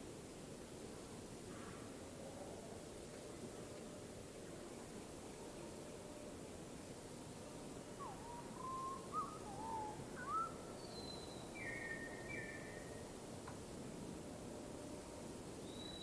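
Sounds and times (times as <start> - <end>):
background hiss: 0.0 - 16.0
bird whistling calls: 8.0 - 12.8.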